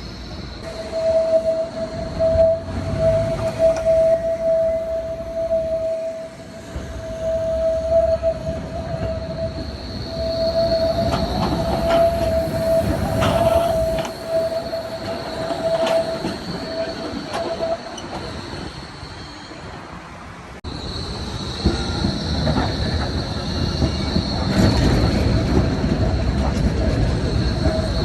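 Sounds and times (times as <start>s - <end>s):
tram rumbling: 0.0s - 28.0s
tram wheels squealing: 0.0s - 28.0s
wheels clacking on rails: 6.6s - 19.8s, 20.7s - 28.0s.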